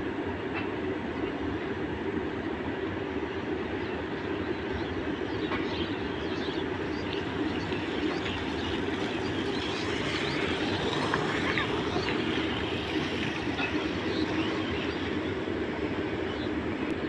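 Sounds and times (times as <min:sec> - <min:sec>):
train wagons rumbling past: 0:05.4 - 0:16.3.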